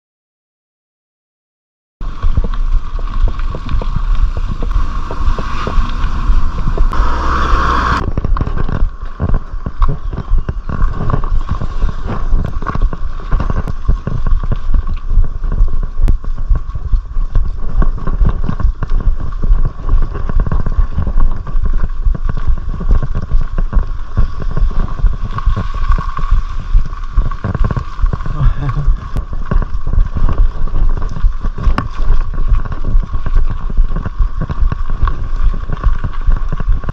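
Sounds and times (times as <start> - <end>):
bike rattling and knocking: 2.0 - 7.0, 8.0 - 36.9
wind buffeting microphone: 2.0 - 36.9.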